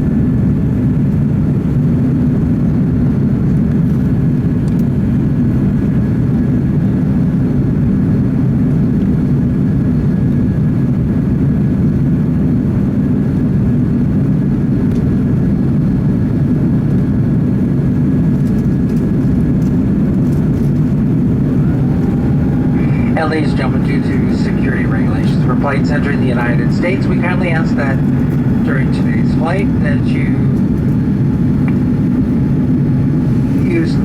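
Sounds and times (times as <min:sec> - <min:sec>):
jet engine cabin noise: 0:00.0 - 0:34.0
faint thin hum: 0:20.8 - 0:34.0.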